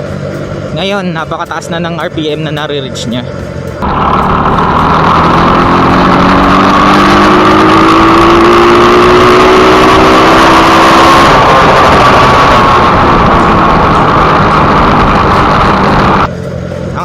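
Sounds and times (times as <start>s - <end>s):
motorcycle engine revving high: 3.8s - 17.0s.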